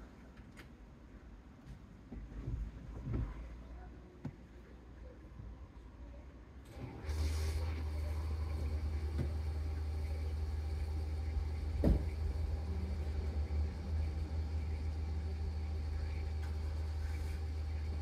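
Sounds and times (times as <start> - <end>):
car engine idling rumble: 6.7 - 18.0.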